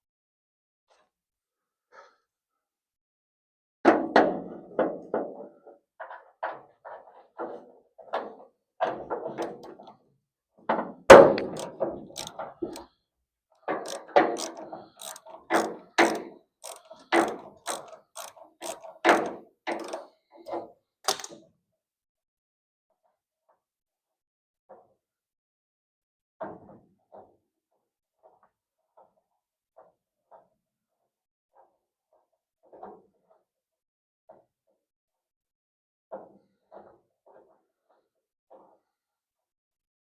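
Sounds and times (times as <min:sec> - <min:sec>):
hand tools clicking and clanking: 0:11.3 - 0:12.9, 0:13.6 - 0:20.0.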